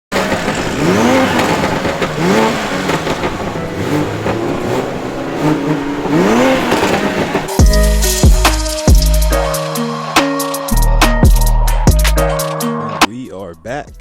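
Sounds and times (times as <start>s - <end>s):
car engine revving: 0.1s - 10.5s.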